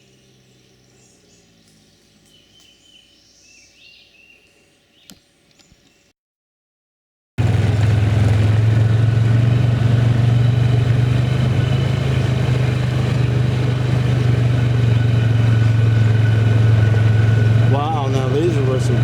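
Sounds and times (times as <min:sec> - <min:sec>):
vehicle engine droning: 0:07.4 - 0:19.0.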